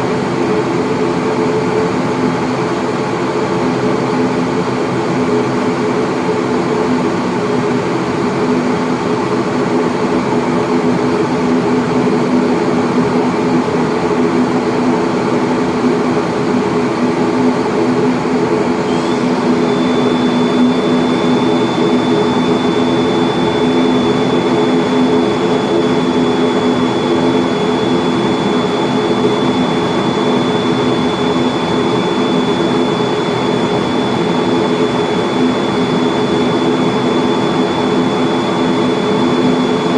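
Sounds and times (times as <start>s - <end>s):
turboprop engines droning: 0.0s - 39.9s
thin high whine: 17.6s - 39.9s.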